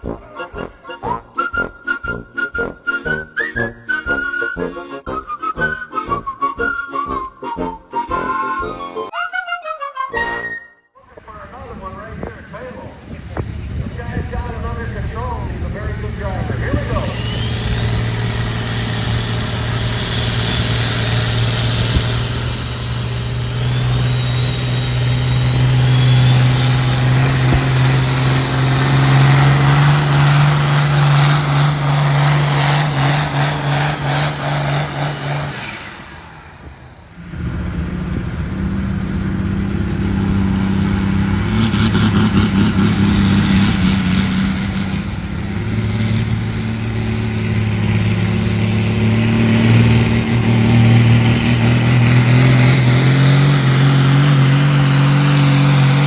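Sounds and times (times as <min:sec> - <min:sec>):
high whistle gliding: 0:00.0 - 0:10.9, 0:16.2 - 0:37.0
another engine running hard: 0:11.5 - 0:56.0
engine at full throttle: 0:12.0 - 0:56.0.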